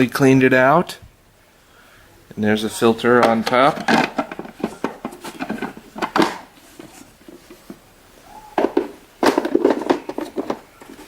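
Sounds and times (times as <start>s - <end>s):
plastic clatter: 3.1s - 7.8s, 8.6s - 11.0s
plastic clicks and knocks: 3.2s - 6.5s, 8.6s - 11.0s.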